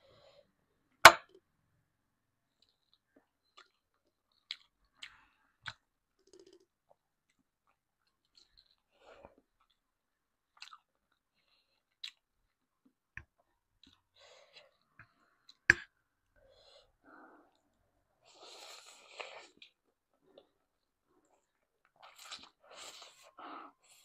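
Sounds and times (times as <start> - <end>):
person chewing: 2.6 - 6.6, 10.5 - 12.3.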